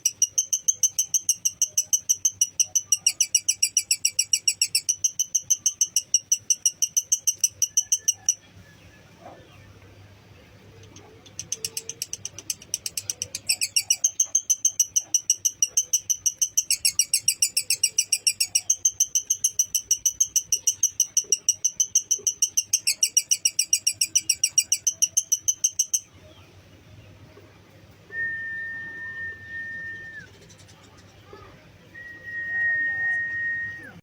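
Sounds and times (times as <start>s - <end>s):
lovebird chattering trill: 0.0s - 8.5s, 10.8s - 26.3s
steady whistled tone: 28.1s - 30.4s, 31.9s - 34.0s.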